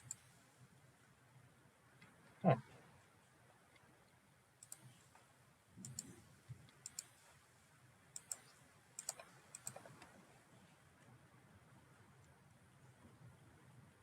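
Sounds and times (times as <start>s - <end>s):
computer mouse clicks: 0.0s - 0.2s, 4.6s - 5.0s, 5.8s - 7.2s, 8.2s - 10.1s.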